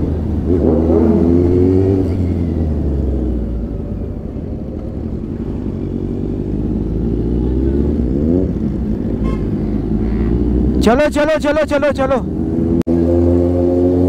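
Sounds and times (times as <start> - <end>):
motorcycle engine accelerating: 0.0 - 11.2, 12.2 - 14.0.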